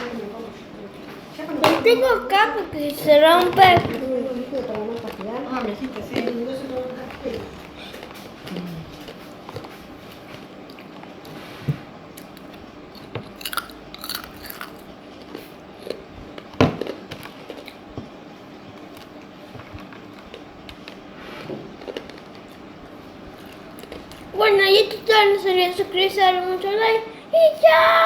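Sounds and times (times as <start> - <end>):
candy glass crunching: 13.0 - 14.9.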